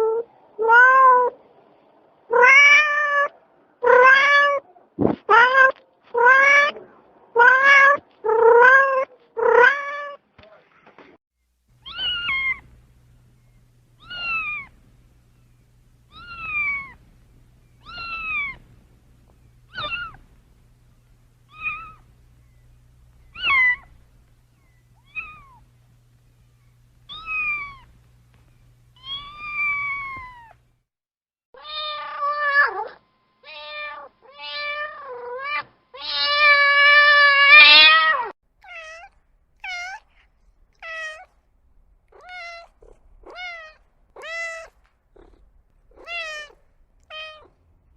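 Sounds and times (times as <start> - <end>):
cats meowing: 0.0 - 1.4, 2.3 - 4.7, 5.3 - 10.2, 11.8 - 12.8, 13.9 - 17.1, 17.7 - 20.3, 21.4 - 22.1, 23.2 - 25.7, 27.1 - 28.0, 29.0 - 30.6, 31.6 - 41.3, 42.1 - 47.6
faint low hum: 0.0 - 30.9, 31.6 - 47.9.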